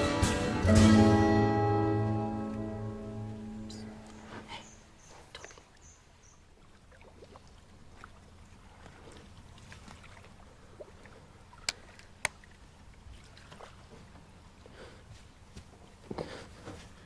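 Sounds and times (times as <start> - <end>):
low steady hum: 0.0 - 17.0
water lapping and trickling: 3.3 - 17.0.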